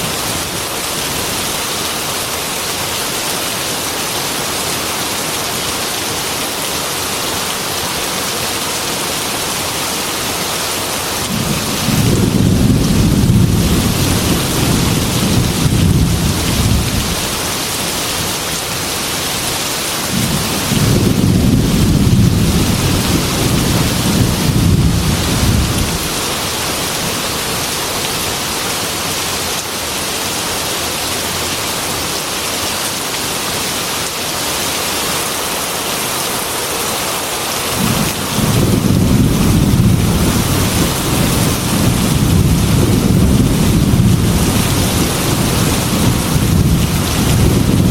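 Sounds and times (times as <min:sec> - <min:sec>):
heavy rain on window: 0:00.0 - 0:47.9
thunder rolling: 0:11.3 - 0:17.4, 0:20.1 - 0:26.1, 0:37.8 - 0:47.9.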